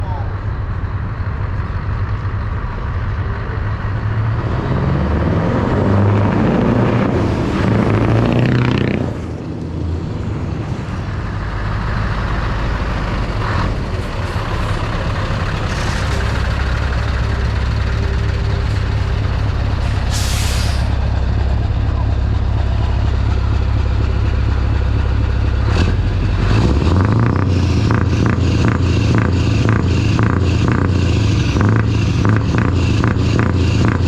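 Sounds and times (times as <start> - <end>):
truck diesel engine running: 0.0 - 34.0
air brake hiss: 19.8 - 20.9.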